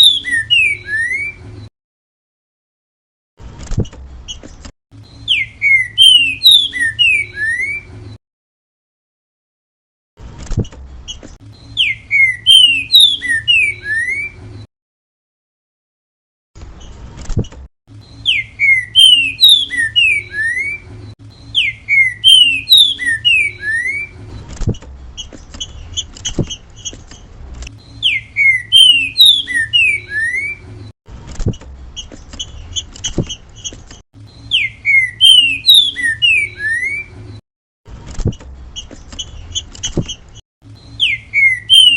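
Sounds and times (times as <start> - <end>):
bird singing slurred whistles: 0.0 - 1.4, 5.1 - 7.9, 11.6 - 14.4, 18.0 - 24.2, 27.8 - 30.6, 34.3 - 37.2, 40.8 - 41.9.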